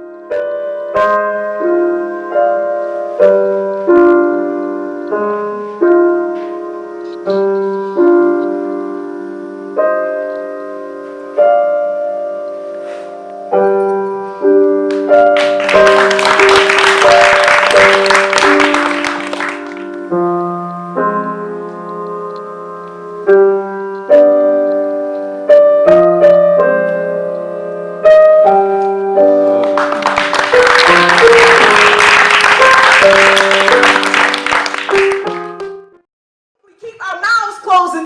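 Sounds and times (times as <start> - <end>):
piano playing slow chords: 0.0 - 36.1
audience applause: 15.4 - 20.0, 29.6 - 35.6.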